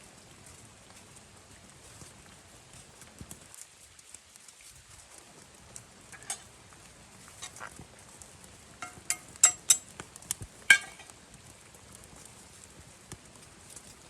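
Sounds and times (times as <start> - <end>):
tableware clinking: 6.2 - 6.4, 8.8 - 9.8, 10.7 - 11.1.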